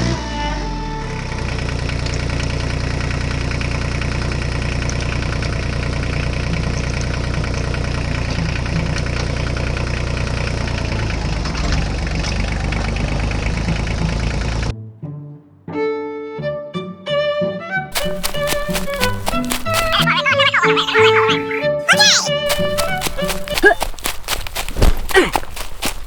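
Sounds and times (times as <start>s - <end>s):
music: 0.0s - 1.7s, 14.7s - 17.9s, 20.1s - 22.4s.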